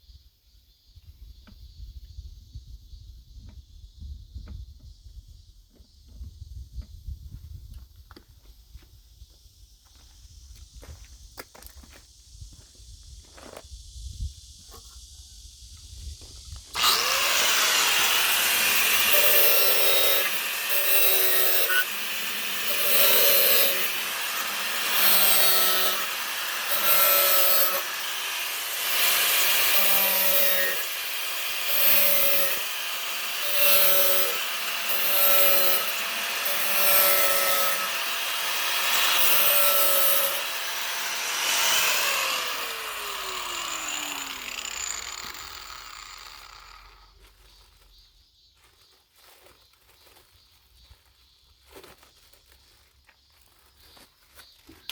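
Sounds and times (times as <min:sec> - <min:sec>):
motor whine: 0:16.6 - 0:47.2
power tool cutting: 0:16.7 - 0:47.2.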